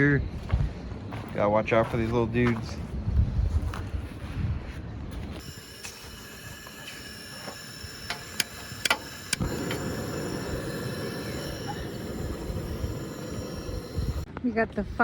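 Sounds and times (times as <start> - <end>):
gas burner flame rushing: 5.4 - 14.3
stove igniter clicks: 5.4 - 14.3.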